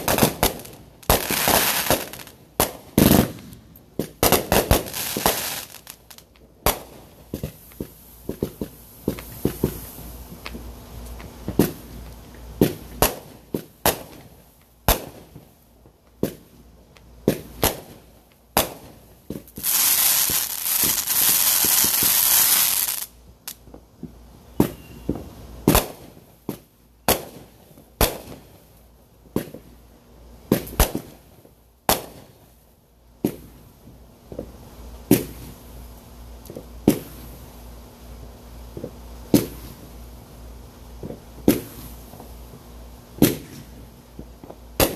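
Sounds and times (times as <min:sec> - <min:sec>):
firecracker bangs: 0:00.0 - 0:06.0
loud hissing rush of fireworks: 0:00.0 - 0:44.9.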